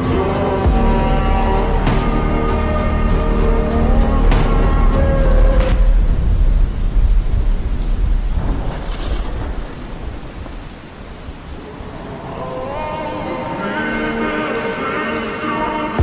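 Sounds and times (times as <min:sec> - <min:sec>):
music: 0:00.0 - 0:06.0
thunder rumble: 0:00.0 - 0:14.2
rain: 0:00.0 - 0:16.0.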